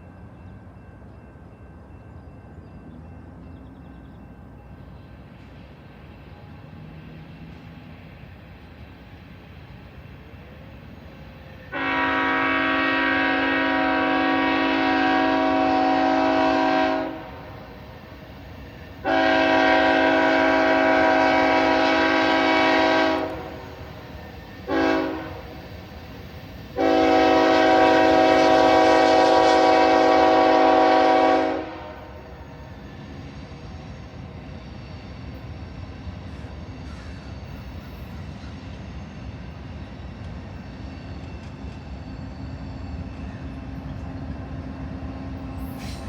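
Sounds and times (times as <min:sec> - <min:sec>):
locomotive air horn: 0:11.7 - 0:17.7, 0:19.0 - 0:24.0, 0:24.6 - 0:25.6, 0:26.8 - 0:32.4.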